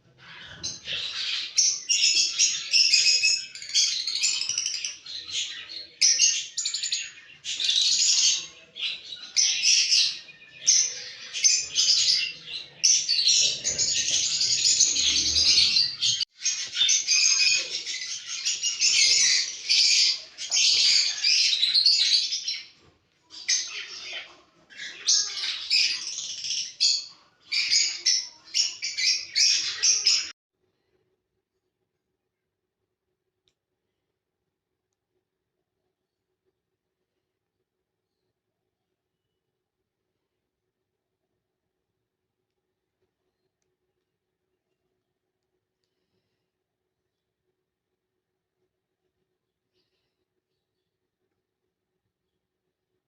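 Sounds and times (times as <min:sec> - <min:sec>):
lovebirds chattering and chirping: 0:00.1 - 0:30.3.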